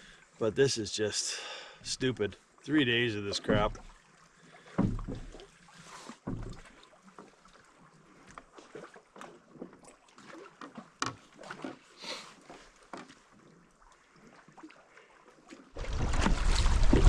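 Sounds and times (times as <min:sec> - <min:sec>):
water splashing against canoe: 0:02.8 - 0:17.0.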